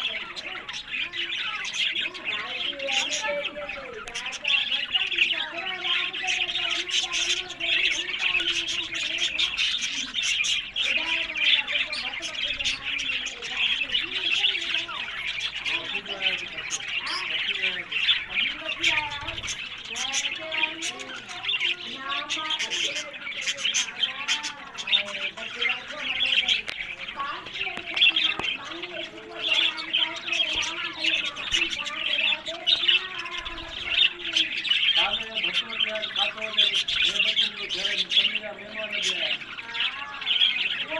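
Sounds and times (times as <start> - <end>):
budgerigars chirping and chattering: 0.0 - 40.9.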